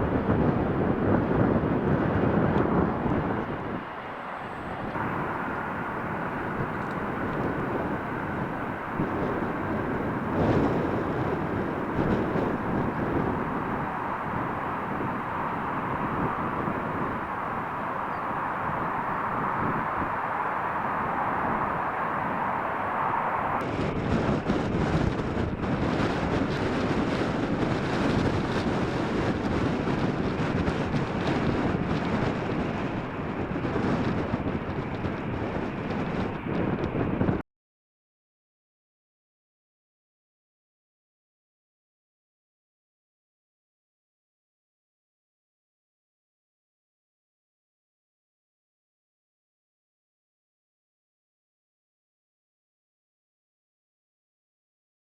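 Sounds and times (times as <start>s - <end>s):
jet engines roaring: 0.0s - 37.0s
high engine whine: 0.0s - 37.4s
wind buffeting microphone: 0.0s - 37.4s.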